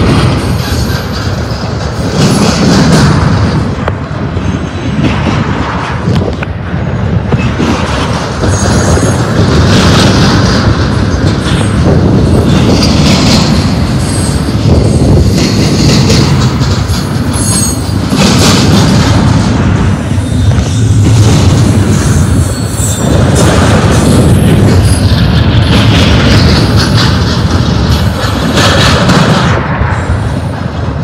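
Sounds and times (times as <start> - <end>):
train wheels rumbling on rails: 0.0 - 31.0
high wheel squeal: 14.0 - 15.1, 17.3 - 18.0, 22.0 - 23.2.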